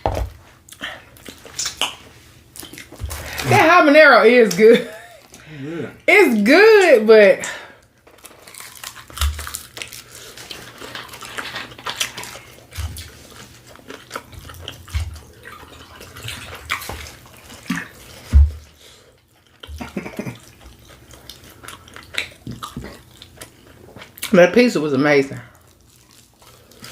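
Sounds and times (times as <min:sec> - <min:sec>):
wet chewing and mouth smacking: 0:00.6 - 0:03.5, 0:07.9 - 0:24.3, 0:25.6 - 0:26.9.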